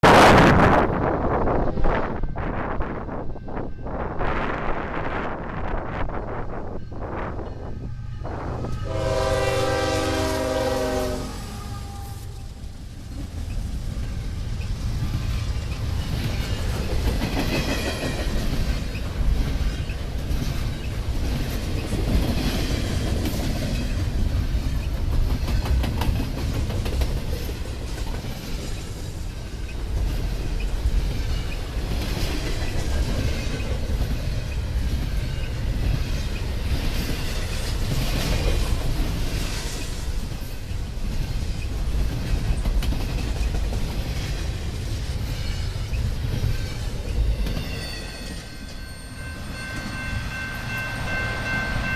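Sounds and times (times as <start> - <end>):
train rumbling: 0.0 - 51.9
locomotive air horn: 8.1 - 12.6
train wheels clacking on rails: 13.1 - 51.9.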